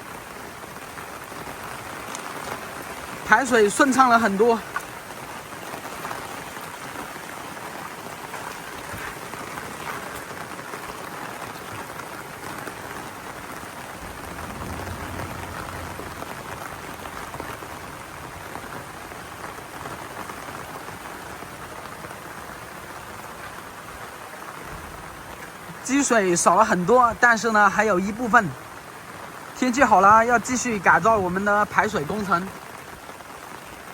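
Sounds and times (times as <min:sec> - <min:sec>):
heavy rain falling: 0:00.0 - 0:33.9
low rumble: 0:13.8 - 0:18.3.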